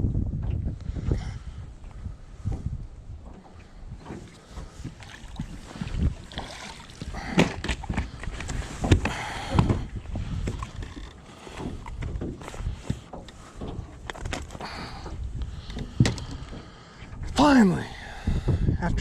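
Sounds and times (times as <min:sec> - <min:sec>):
wind rumbling on microphone: 0:00.0 - 0:19.0
water splashing: 0:04.0 - 0:12.4
knocks on a boat: 0:08.8 - 0:09.9.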